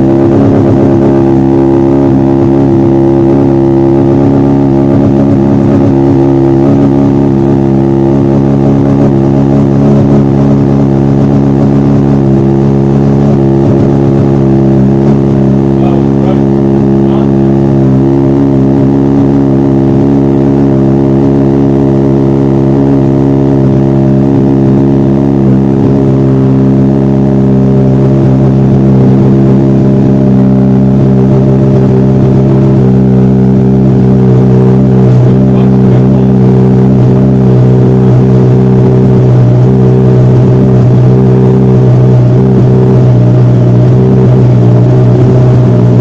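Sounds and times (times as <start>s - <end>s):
motorcycle engine idling: 0.0s - 46.0s.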